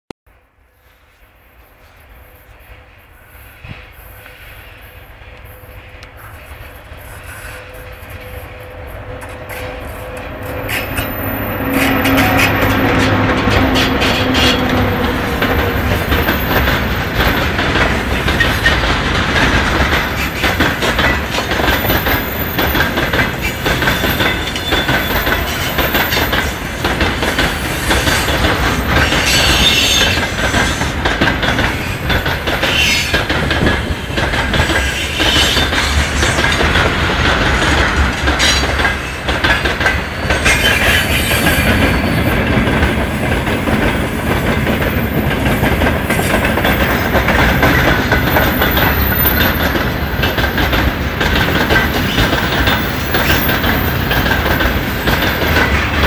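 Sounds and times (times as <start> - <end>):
train wheels clattering over rail joints: 9.1 - 56.0
high wheel squeals: 23.4 - 26.6, 27.9 - 30.3, 39.8 - 42.5, 51.8 - 55.1.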